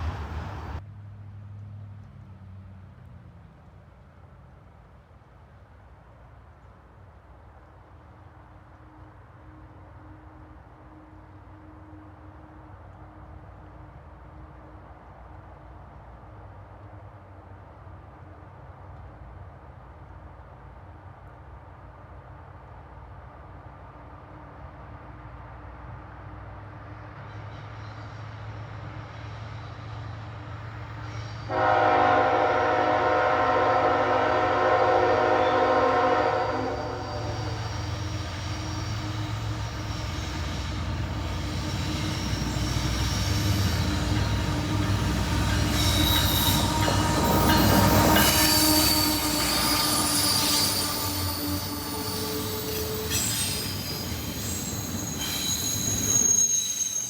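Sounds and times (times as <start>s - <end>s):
locomotive rumble: 0.0s - 0.8s, 30.8s - 57.0s
rail noise: 0.0s - 0.9s, 2.1s - 57.0s
train wheel squeal: 27.0s - 57.0s
train air horn blast: 31.5s - 41.6s, 42.2s - 53.7s.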